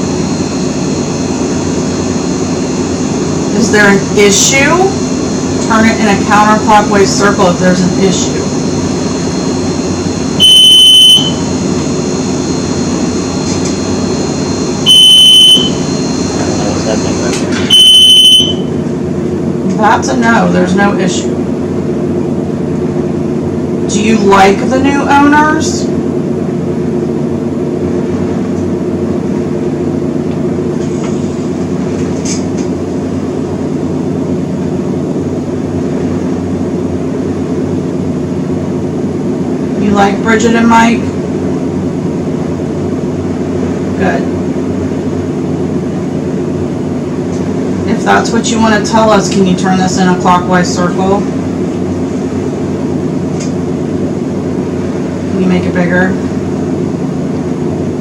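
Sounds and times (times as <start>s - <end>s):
low rumbling hum: 0.0s - 58.0s
loud electronic beep: 10.4s - 11.5s, 14.8s - 16.2s, 17.7s - 18.7s.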